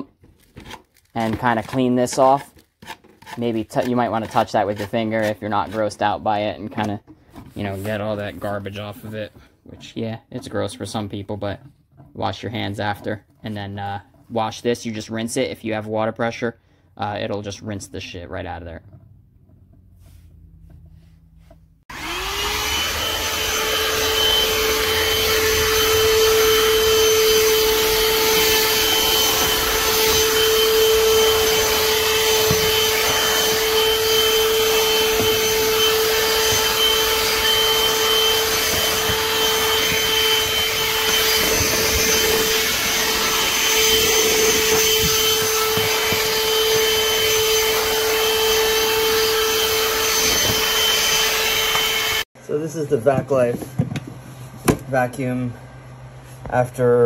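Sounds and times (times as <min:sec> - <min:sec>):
handheld vacuum motor running: 0:21.9 - 0:52.3.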